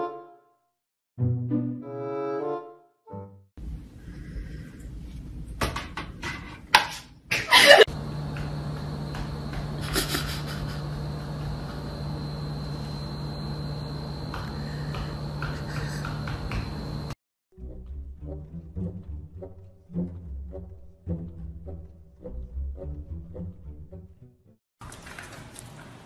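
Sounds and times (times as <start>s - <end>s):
low hum with high whine: 3.6s - 6.2s, 7.3s - 17.2s.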